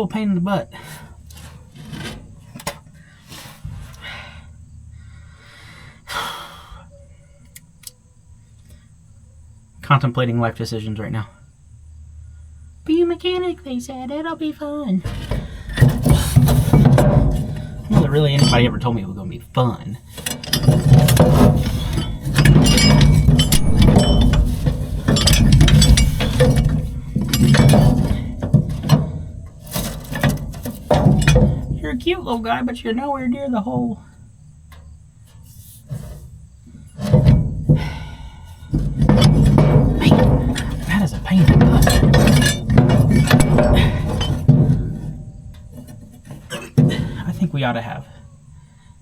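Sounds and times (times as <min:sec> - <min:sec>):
man breathing hard: 0:03.0 - 0:06.9, 0:37.8 - 0:38.7
hand tools clinking on metal: 0:15.0 - 0:19.4, 0:20.0 - 0:33.0, 0:36.8 - 0:47.9.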